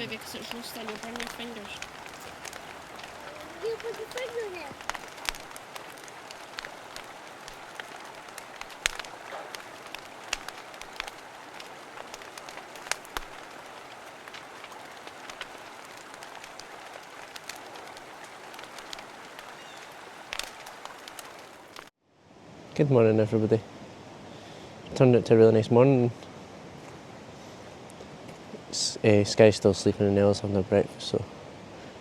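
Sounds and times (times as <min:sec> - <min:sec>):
river rushing: 0:00.0 - 0:21.9
wood fire crackling and popping: 0:00.0 - 0:21.9.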